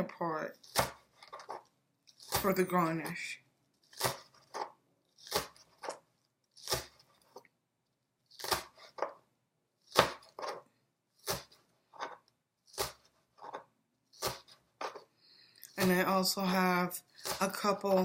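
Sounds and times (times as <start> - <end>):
knife chopping on cutting board: 6.6 - 7.0, 9.9 - 10.6, 11.2 - 13.6, 14.2 - 15.0.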